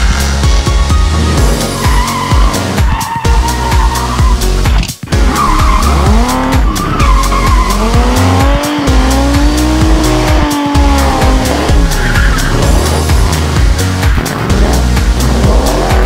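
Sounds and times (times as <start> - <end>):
car engine revving: 0.0 - 16.0
music with heavy beat: 0.0 - 16.0
tyres squealing: 0.7 - 4.5, 5.1 - 13.5.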